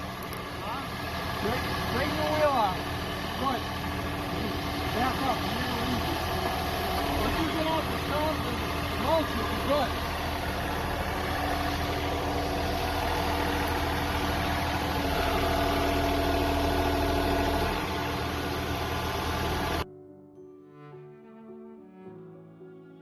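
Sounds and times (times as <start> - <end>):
tractor diesel engine running: 0.0 - 19.8
soft cello music: 19.8 - 23.0.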